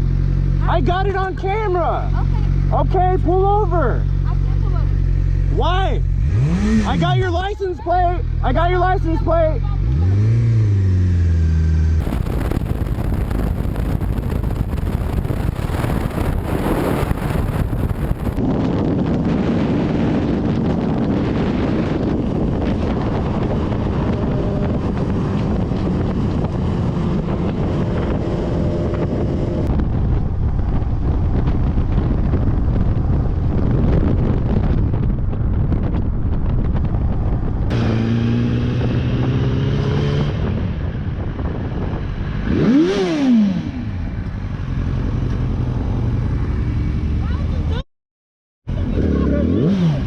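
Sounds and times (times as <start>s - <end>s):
motorcycle engine running: 0.0s - 7.2s, 9.2s - 39.5s
wind rush on camera: 9.0s - 47.8s.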